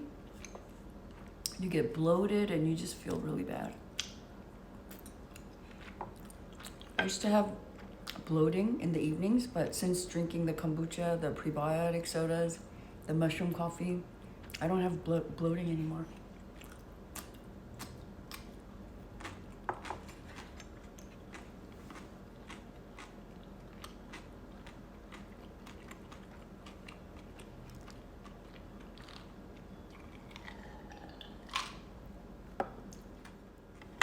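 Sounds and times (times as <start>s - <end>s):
person chewing food: 4.9s - 7.0s, 16.2s - 31.8s.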